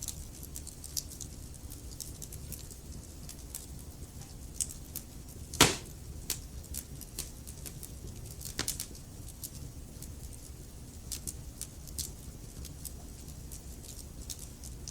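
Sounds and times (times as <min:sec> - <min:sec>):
fire popping and snapping: 0:00.1 - 0:10.4
wood fire burning: 0:03.2 - 0:08.9.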